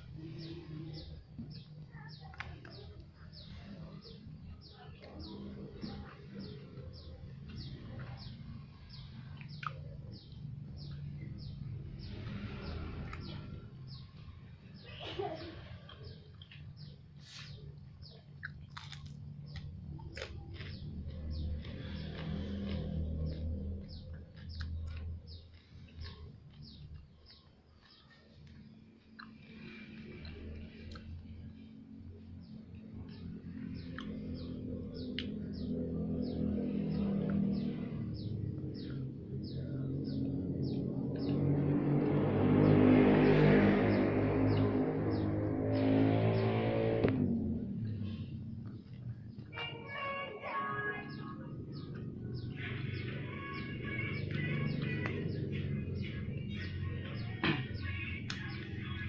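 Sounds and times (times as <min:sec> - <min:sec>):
bird chirping: 0:00.0 - 0:59.0
close chewing: 0:15.9 - 0:31.2.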